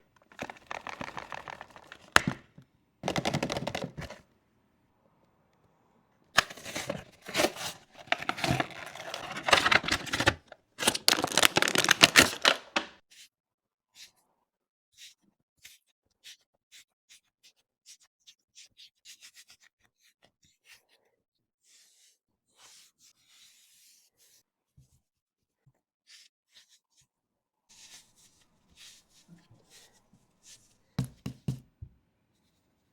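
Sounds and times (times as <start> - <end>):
packaging rustling and crinkling: 0.1 - 4.2, 6.4 - 13.0
quick clicks and taps: 0.2 - 4.2.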